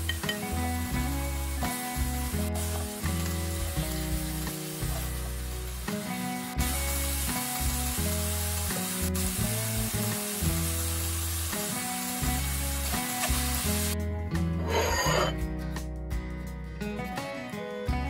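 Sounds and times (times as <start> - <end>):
meat sizzling in a frying pan: 0.0 - 14.0
soft background music: 0.0 - 18.0.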